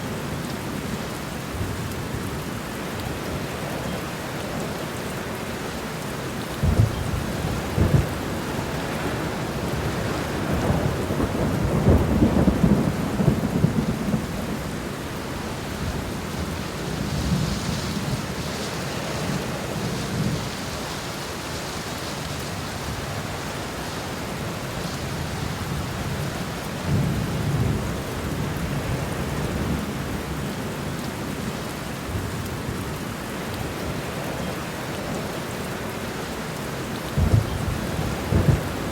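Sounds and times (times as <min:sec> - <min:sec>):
steady rain falling: 0:00.0 - 0:38.9
thunder claps and rumbles: 0:06.6 - 0:20.6, 0:25.2 - 0:30.3, 0:37.1 - 0:38.9.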